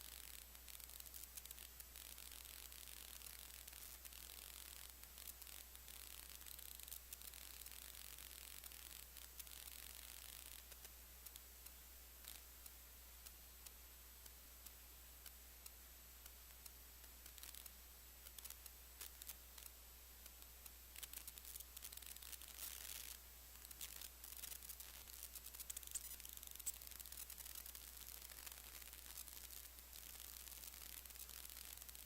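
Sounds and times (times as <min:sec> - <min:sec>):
faint room hum: 0:00.0 - 0:32.0
faint clicks: 0:00.2 - 0:32.0.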